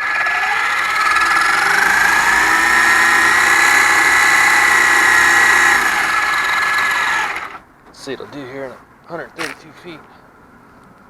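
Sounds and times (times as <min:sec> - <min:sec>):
electric motor whining: 0:00.0 - 0:07.6.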